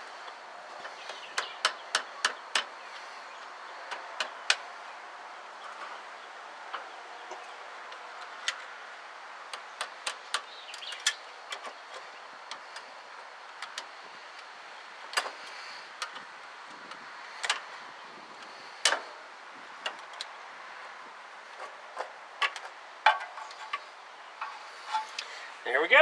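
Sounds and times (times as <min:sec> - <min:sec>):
hand tools clicking on metal: 0:00.8 - 0:03.1, 0:09.5 - 0:14.5.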